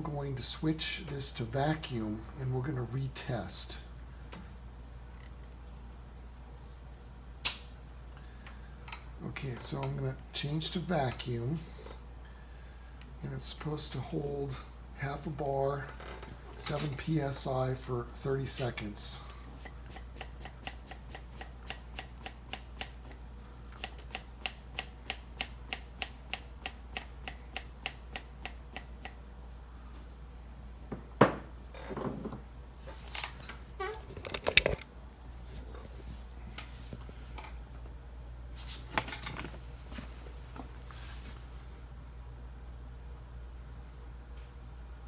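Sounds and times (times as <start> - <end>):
tool knocking and clattering: 30.9 - 32.4.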